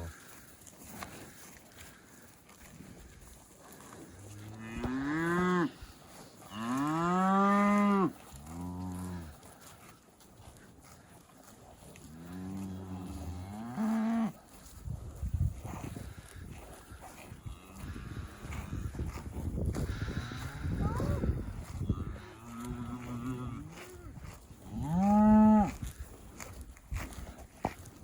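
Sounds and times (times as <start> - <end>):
cattle mooing: 4.2 - 5.8, 6.4 - 9.3, 12.0 - 14.4, 17.1 - 18.7, 19.9 - 25.8.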